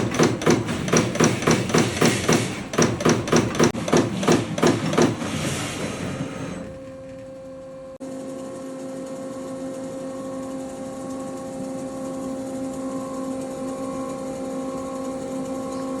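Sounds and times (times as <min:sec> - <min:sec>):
punch press punching: 0:00.0 - 0:06.0
machine humming: 0:00.0 - 0:16.0.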